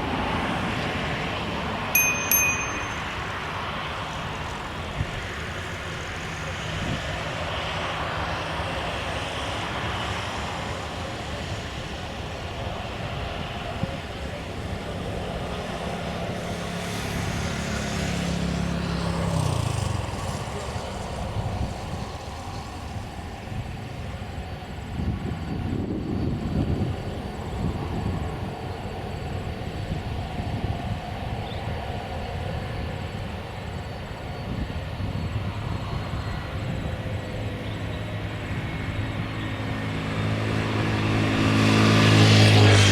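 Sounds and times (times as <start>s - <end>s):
airliner engines passing: 0.0s - 42.9s
wind gusts on microphone: 19.0s - 42.9s.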